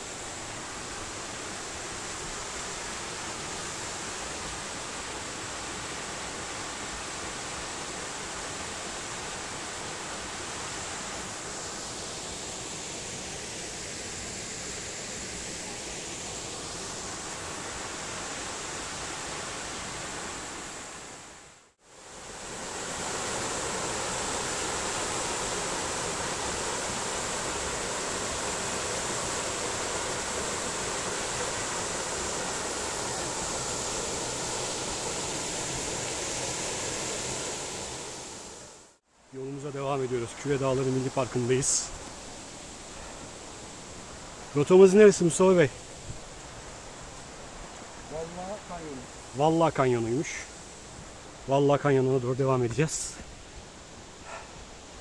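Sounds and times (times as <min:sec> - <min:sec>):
waterfall rushing: 0:21.9 - 0:39.0, 0:46.6 - 0:53.1.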